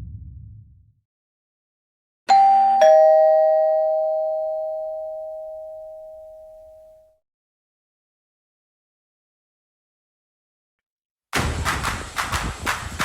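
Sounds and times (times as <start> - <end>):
two-note ding-dong chime: 2.3 - 7.1.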